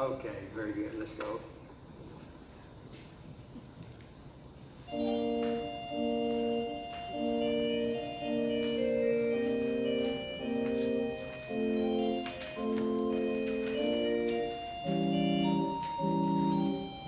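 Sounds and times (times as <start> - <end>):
organ playing sustained chords: 4.7 - 17.0.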